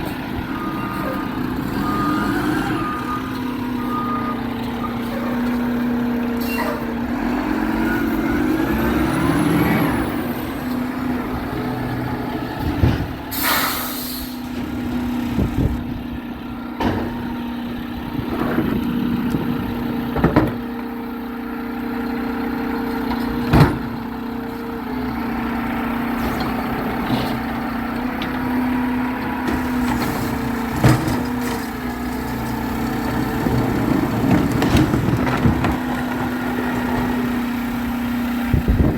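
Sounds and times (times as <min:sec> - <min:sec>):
garbage truck engine drone: 0:00.0 - 0:38.9
air brake hiss: 0:13.3 - 0:14.4.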